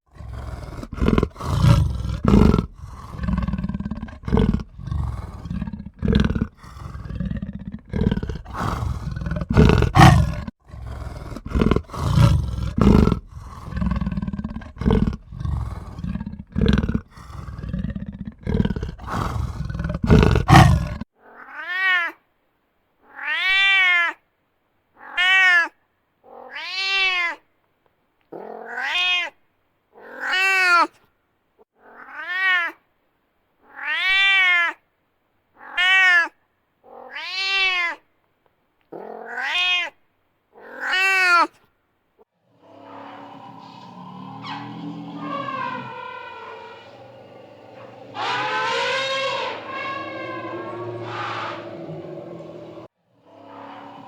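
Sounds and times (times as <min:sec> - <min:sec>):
big cats growling and roaring: 0:00.1 - 0:21.1, 0:42.5 - 0:54.0
meow-like cat calls: 0:25.0 - 0:25.8, 0:28.6 - 0:29.4, 0:35.6 - 0:38.0, 0:39.2 - 0:40.0, 0:44.4 - 0:52.0.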